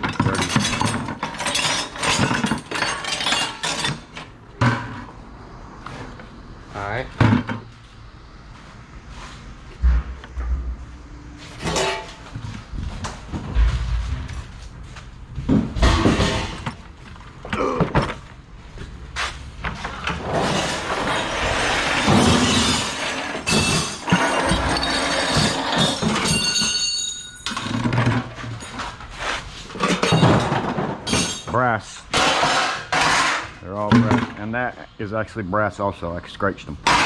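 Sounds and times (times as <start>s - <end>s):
metal scrap clanking: 0.0s - 5.1s, 11.4s - 12.5s, 15.8s - 16.8s, 20.1s - 29.0s, 29.7s - 34.3s
metallic ringing tone: 26.3s - 27.5s.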